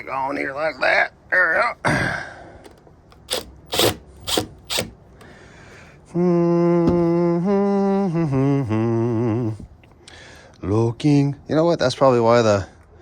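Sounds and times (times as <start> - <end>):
rasping ratchet-like strokes: 3.2 - 5.0.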